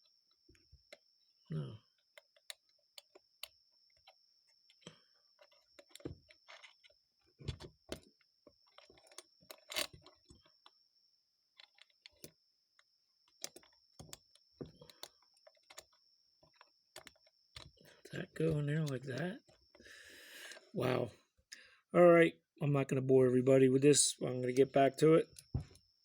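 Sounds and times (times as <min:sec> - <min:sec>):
small metal parts clicking: 0:02.2 - 0:10.7, 0:11.5 - 0:18.1
steady high-pitched whine: 0:17.6 - 0:21.2.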